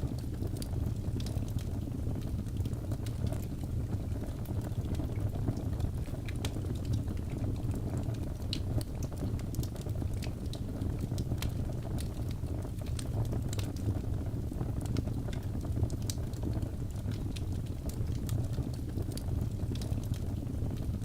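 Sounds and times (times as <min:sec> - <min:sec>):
low rumble of flames: 0:00.0 - 0:21.0
wood fire crackling and popping: 0:00.0 - 0:21.0.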